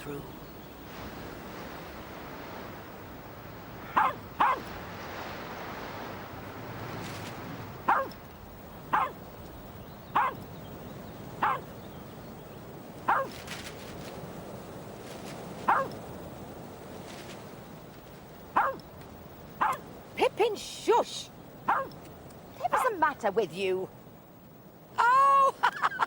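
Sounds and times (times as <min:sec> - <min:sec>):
steady rushing background: 0:00.3 - 0:24.9
dog barking: 0:03.8 - 0:04.8, 0:07.8 - 0:08.2, 0:08.9 - 0:09.2, 0:10.1 - 0:10.5, 0:11.4 - 0:11.7, 0:13.0 - 0:13.4, 0:15.6 - 0:16.0, 0:18.5 - 0:18.9, 0:19.6 - 0:19.9, 0:21.6 - 0:22.0.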